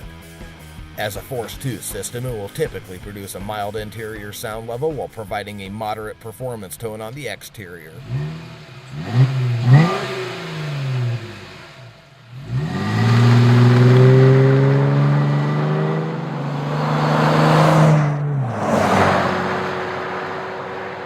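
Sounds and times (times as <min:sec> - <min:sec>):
car engine exhaust revving: 0:07.9 - 0:21.0.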